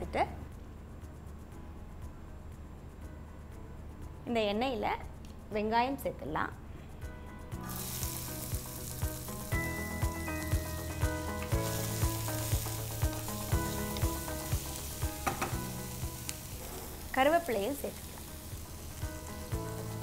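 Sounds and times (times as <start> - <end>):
background music with steady beat: 0.0 - 20.0
onions sizzling in a frying pan: 7.6 - 20.0.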